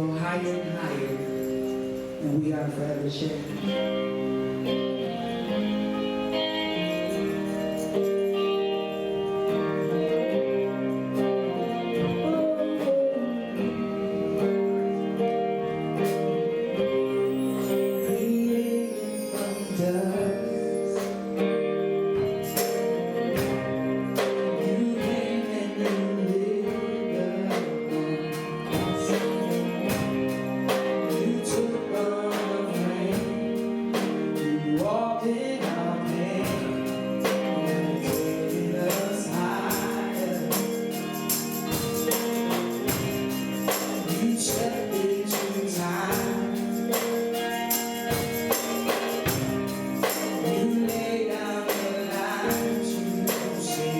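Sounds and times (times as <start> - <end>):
live band gospel music: 0.0 - 53.9
tambourine: 0.3 - 2.5, 5.4 - 12.5, 16.0 - 35.0, 35.7 - 53.9
people singing: 16.4 - 21.4, 22.5 - 48.2, 48.8 - 53.9.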